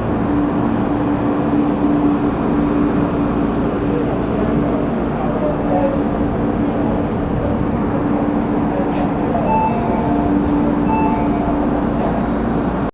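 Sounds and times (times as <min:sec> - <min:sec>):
low hum: 0:00.0 - 0:05.2
electric train rumbling: 0:00.0 - 0:12.9
brief high tones: 0:09.4 - 0:12.0.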